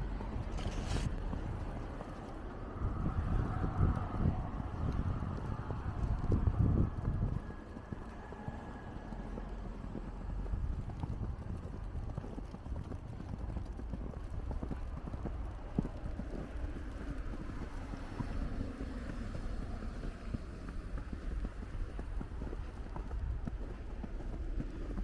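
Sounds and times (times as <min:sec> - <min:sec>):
wind rumble on microphone: 0:00.0 - 0:25.0
footsteps crunching in snow: 0:00.4 - 0:01.4.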